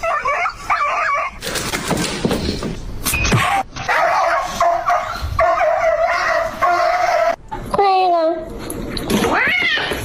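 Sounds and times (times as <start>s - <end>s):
dog barking: 3.5s - 7.4s
cat yowling: 9.3s - 10.0s.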